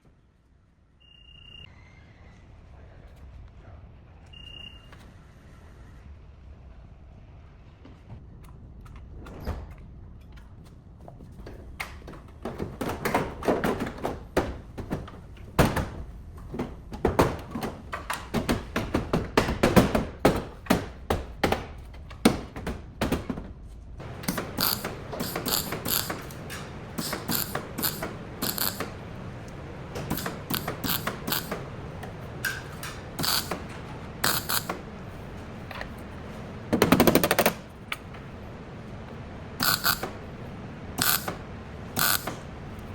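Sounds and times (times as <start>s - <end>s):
hand tools clicking and knocking: 24.0s - 34.9s, 36.7s - 38.1s, 39.6s - 40.2s, 41.0s - 41.4s, 42.0s - 42.4s.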